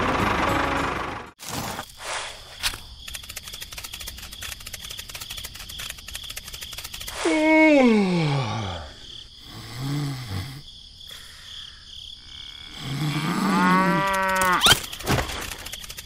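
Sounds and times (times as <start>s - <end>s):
cow mooing: 12.9s - 14.6s.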